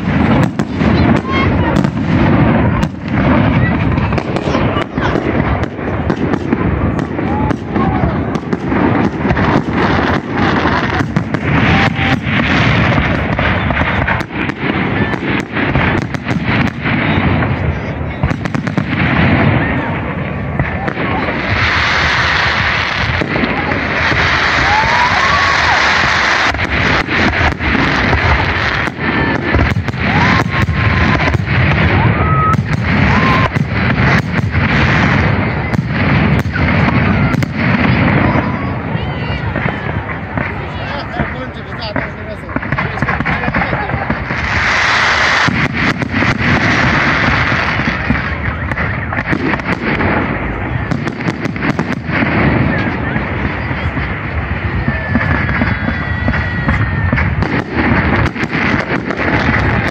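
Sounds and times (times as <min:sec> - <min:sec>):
dense firework crackling: 0:00.0 - 0:59.9
rising firework whistles: 0:00.0 - 0:59.9
firework shells bursting: 0:39.5 - 0:59.9.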